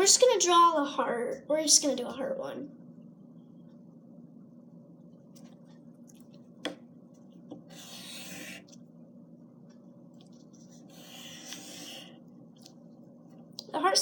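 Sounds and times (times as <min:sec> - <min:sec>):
pencil scratching on paper: 0:07.7 - 0:08.8, 0:10.6 - 0:12.1.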